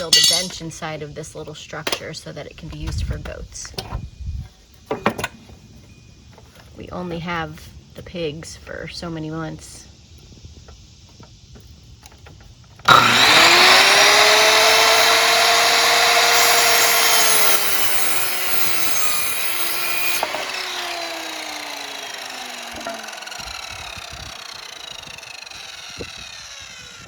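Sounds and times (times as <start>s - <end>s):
circular saw motor whine: 12.8s - 27.0s
saw blade rasping through wood: 12.9s - 27.0s.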